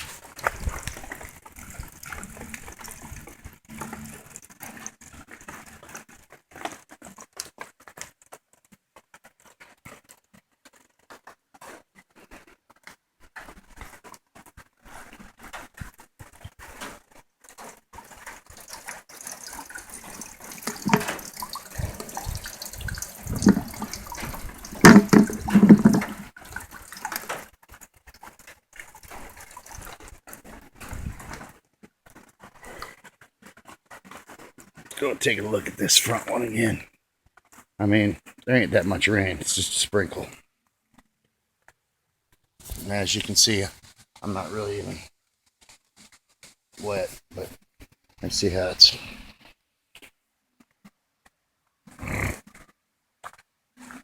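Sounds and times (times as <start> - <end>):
rainwater dripping and trickling: 0.0 - 8.1, 17.5 - 31.5, 33.6 - 36.8, 42.6 - 45.1, 46.8 - 47.6, 48.2 - 49.5
knocks and bumps: 19.5 - 26.3.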